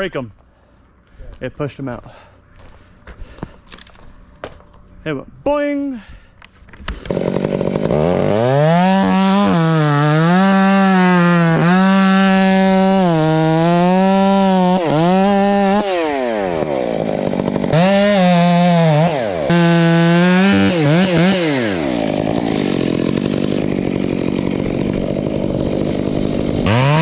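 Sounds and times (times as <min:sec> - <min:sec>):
small two-stroke engine revving: 0:06.9 - 0:27.0.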